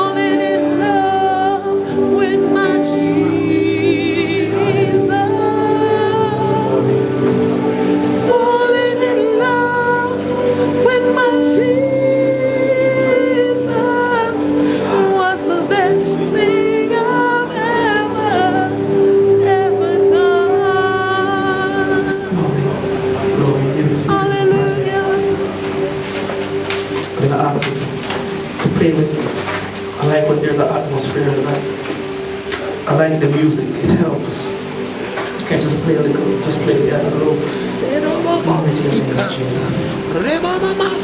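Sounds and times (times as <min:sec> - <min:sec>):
choir singing gospel: 0:00.0 - 0:41.0
keyboard accompaniment: 0:00.0 - 0:41.0.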